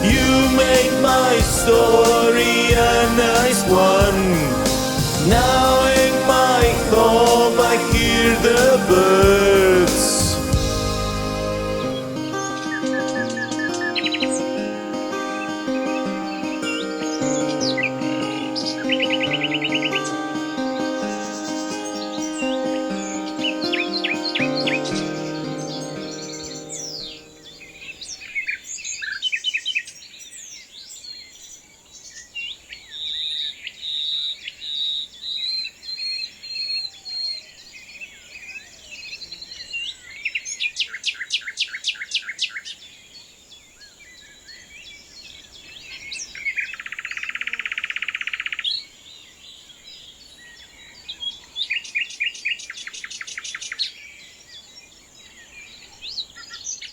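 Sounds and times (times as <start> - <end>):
songbirds chirping and whistling: 11.8 - 56.9
bird trill: 11.9 - 29.9.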